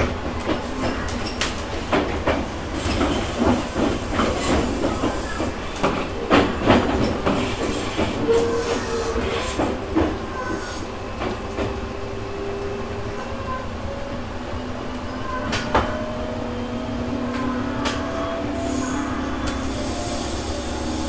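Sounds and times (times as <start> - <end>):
wheels clattering on track: 0.0 - 12.8
train rumble and hiss: 0.0 - 21.0.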